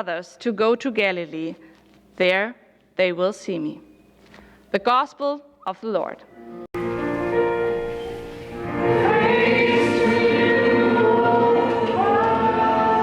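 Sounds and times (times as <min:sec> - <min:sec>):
church choir singing: 0:07.6 - 0:13.0.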